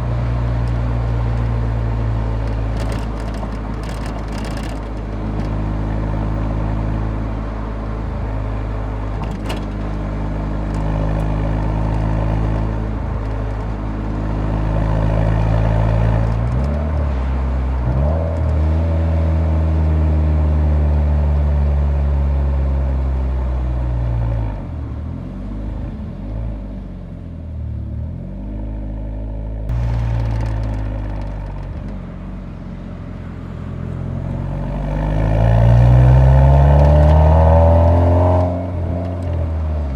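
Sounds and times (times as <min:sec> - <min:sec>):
car exhaust while driving: 0:00.0 - 0:39.9.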